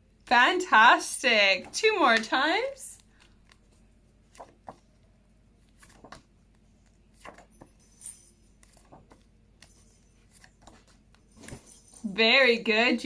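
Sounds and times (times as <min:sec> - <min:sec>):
cards rustling and clicking: 0:01.8 - 0:11.9.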